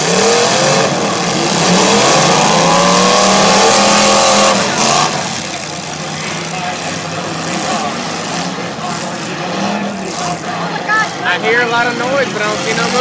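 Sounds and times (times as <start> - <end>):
car engines revving hard: 0.0 - 13.0.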